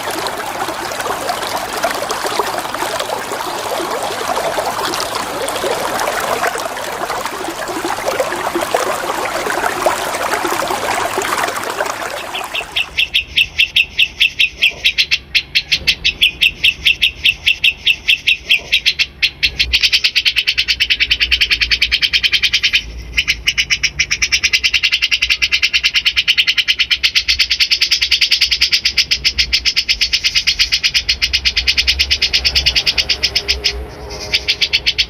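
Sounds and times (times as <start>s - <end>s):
running water trickling: 0.0s - 13.1s.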